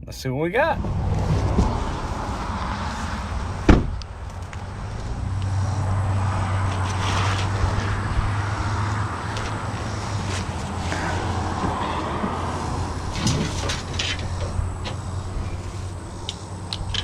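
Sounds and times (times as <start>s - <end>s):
highway traffic noise: 0.6s - 17.0s
truck door slamming: 3.6s - 4.0s, 13.0s - 15.0s.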